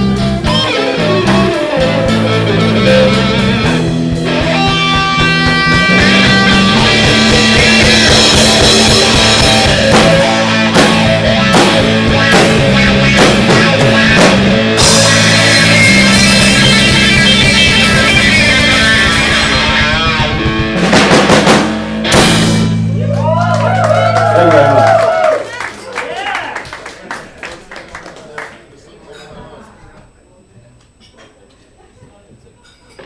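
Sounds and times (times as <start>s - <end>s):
drum kit: 0.0s - 25.1s
electric guitar: 0.0s - 25.4s
heavy drum and cymbal hits: 0.1s - 23.0s.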